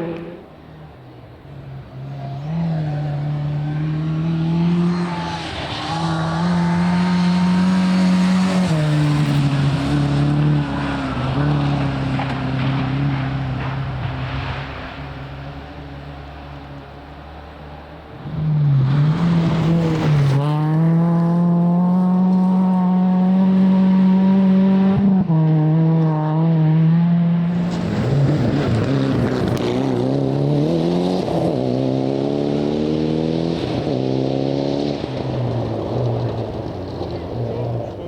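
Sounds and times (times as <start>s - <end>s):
rally car engine revving: 0.0s - 0.7s, 1.8s - 16.6s, 18.0s - 38.0s.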